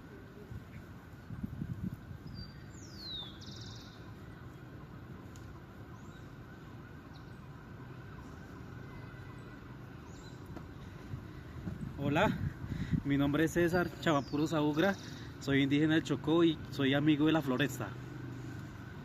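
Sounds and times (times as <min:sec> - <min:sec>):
low outdoor background rumble: 0:00.0 - 0:19.0.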